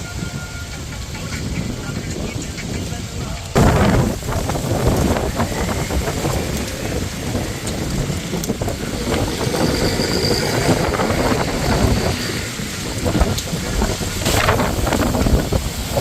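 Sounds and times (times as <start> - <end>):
storm wind buffeting microphone: 0.0 - 16.0.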